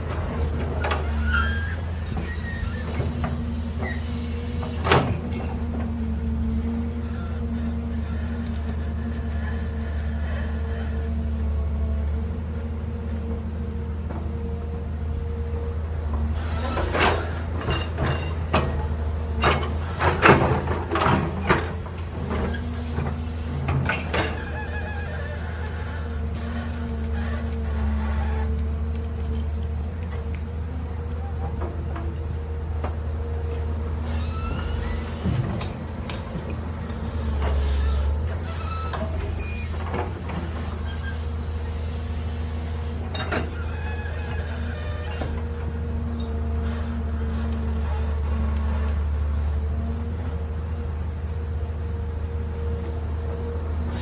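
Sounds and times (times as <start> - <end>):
heavy machine engine running: 0.0 - 54.0
brief squeaks: 1.0 - 3.2, 3.8 - 4.8, 23.9 - 28.6, 34.0 - 35.3, 37.5 - 41.8
metallic clanks and knocks: 16.7 - 24.8.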